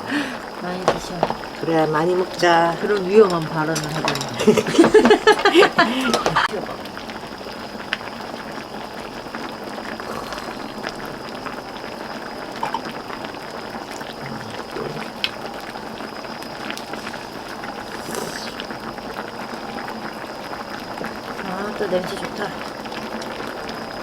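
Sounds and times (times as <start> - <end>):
stew boiling and bubbling: 0.0 - 24.0.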